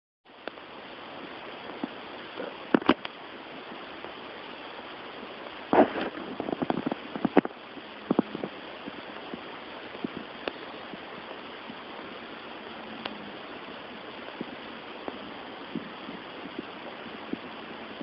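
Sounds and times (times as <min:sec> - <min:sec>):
outdoor background hiss: 0:00.3 - 0:18.0
faint ticks: 0:09.1 - 0:11.8, 0:12.7 - 0:13.4.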